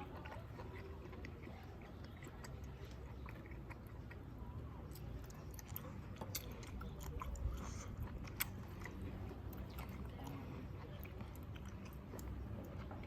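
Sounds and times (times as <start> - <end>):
person chewing: 0.0 - 13.0.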